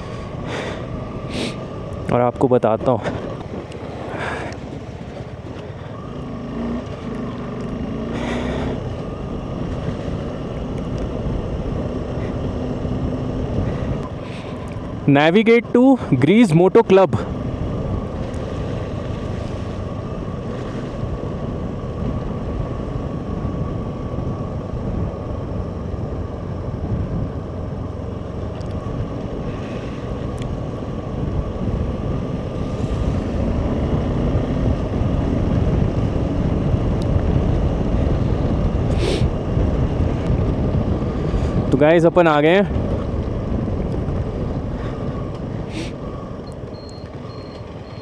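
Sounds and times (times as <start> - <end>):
motorcycle engine running: 0.0 - 48.0
wind noise on microphone: 17.3 - 27.6, 28.7 - 48.0.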